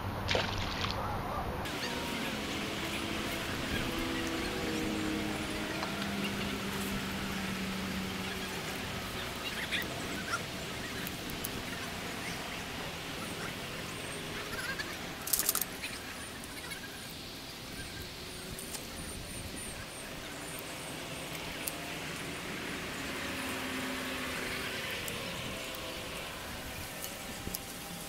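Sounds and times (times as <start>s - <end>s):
steady outdoor hiss: 0.0s - 28.0s
birds chirping: 1.3s - 28.0s
sharp clicks: 15.2s - 15.8s.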